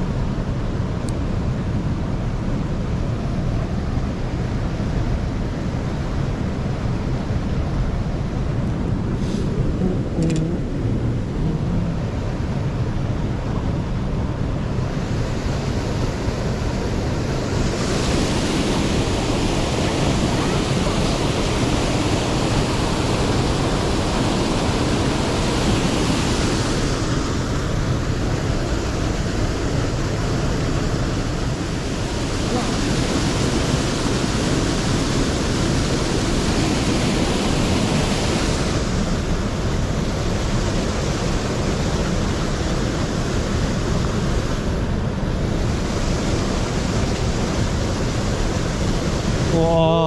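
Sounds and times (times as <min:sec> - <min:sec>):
mountain stream rushing: 0:00.0 - 0:50.0
deep rumble: 0:08.9 - 0:13.1.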